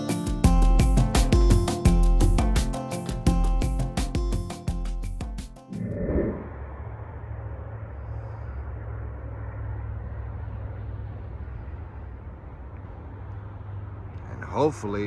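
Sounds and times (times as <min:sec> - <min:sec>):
low outdoor rumble: 0:05.7 - 0:15.0.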